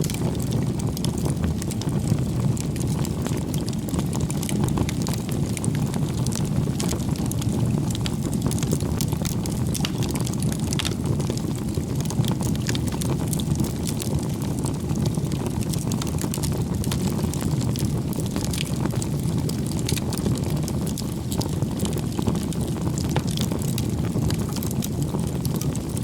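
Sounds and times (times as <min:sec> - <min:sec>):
campfire flames rushing: 0:00.0 - 0:26.0
fire crackling and popping: 0:00.0 - 0:26.0.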